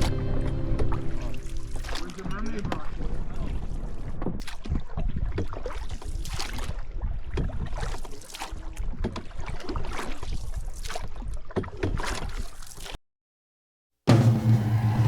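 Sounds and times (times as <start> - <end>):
canoe paddle strokes in water: 0.0 - 13.0
wind rumble on microphone: 2.3 - 7.9.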